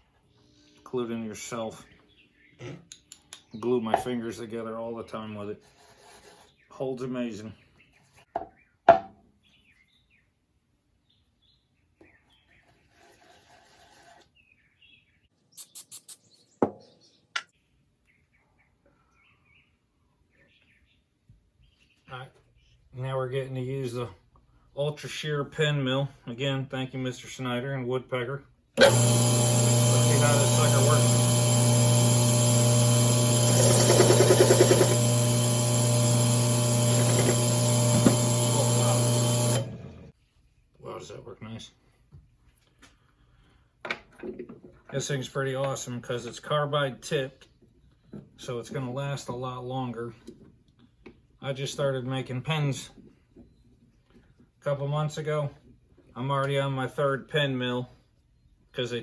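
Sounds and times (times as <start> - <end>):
faint scratching: 5.3 - 6.8, 12.6 - 14.3
cutter chattering against wood: 28.8 - 40.0
drill press motor running: 28.8 - 40.1.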